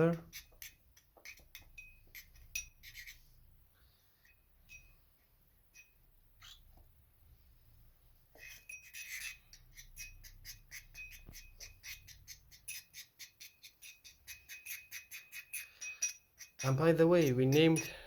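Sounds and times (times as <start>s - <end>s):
metal spoon clinking container: 0.3s - 3.2s, 8.4s - 18.0s.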